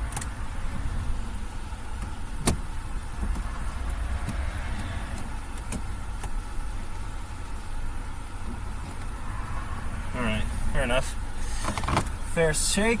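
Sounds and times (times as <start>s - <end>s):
low rumble: 0.0s - 7.0s, 9.0s - 11.4s.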